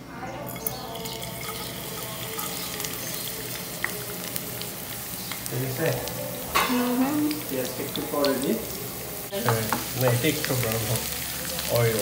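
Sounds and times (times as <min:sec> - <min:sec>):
garlic and onion sizzling in oil: 0:00.4 - 0:12.0.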